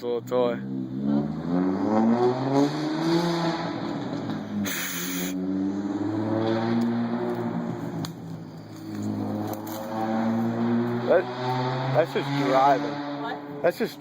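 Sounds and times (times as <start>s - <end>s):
car engine accelerating: 0.0s - 14.0s
short sharp turbo hiss: 4.6s - 5.4s.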